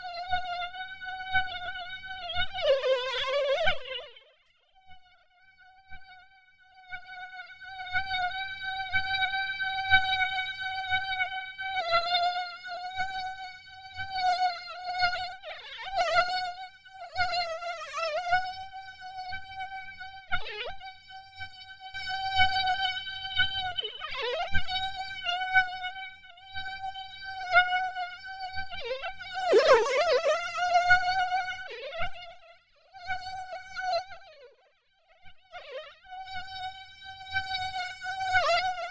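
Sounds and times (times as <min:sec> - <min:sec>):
mosquito wingbeat whine: 0:00.0 - 0:04.2, 0:05.7 - 0:32.3.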